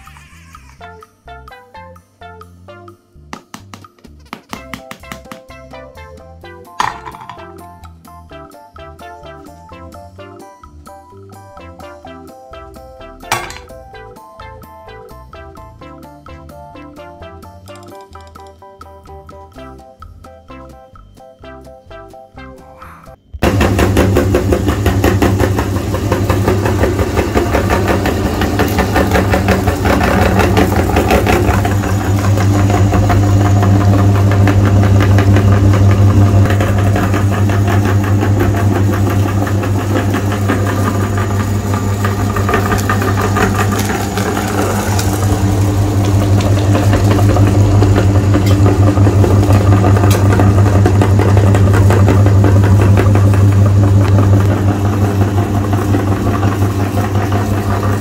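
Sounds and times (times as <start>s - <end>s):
meat grinder motor grinding: 23.4s - 58.0s.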